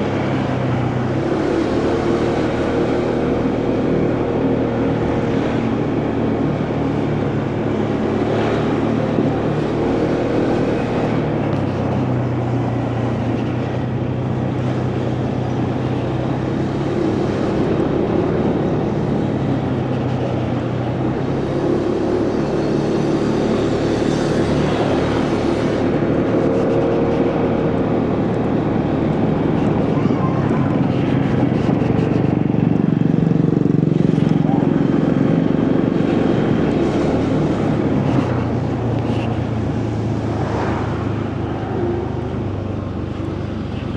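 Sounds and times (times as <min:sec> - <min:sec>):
motorcycle engine running: 0:00.0 - 0:43.9
wind and road noise: 0:00.0 - 0:43.9.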